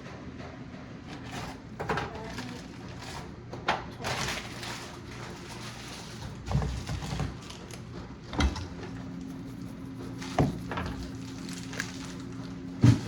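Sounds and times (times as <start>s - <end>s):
steady low hum: 0.0s - 13.0s
kitchen knocks and clunks: 1.0s - 4.4s, 6.2s - 9.1s, 10.0s - 11.3s, 12.7s - 13.0s.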